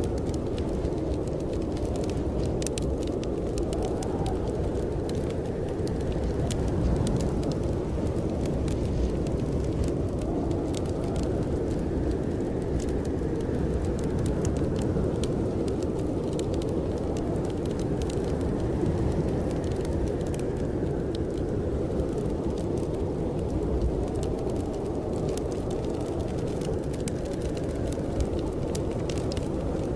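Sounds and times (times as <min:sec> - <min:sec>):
blizzard wind blowing: 0:00.0 - 0:29.9
wood fire crackling: 0:00.0 - 0:29.9.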